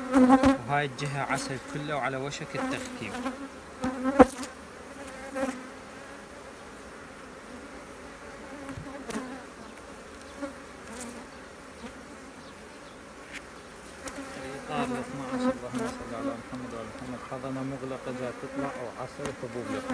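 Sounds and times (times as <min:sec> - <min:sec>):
bees buzzing: 0:00.0 - 0:19.9
light knocks on hive frames: 0:18.4 - 0:19.9.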